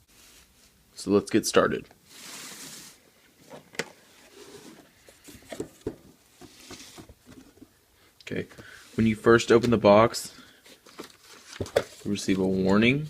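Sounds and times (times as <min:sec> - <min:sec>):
cardboard rustling slide: 0:00.0 - 0:00.8, 0:02.0 - 0:07.6.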